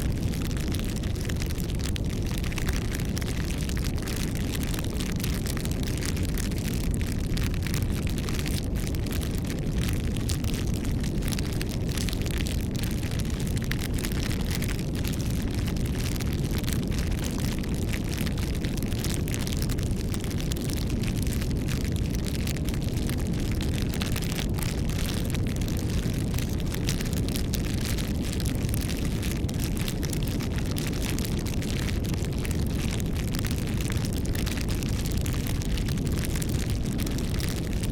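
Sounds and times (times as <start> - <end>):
bonfire crackling and popping: 0.0 - 37.9.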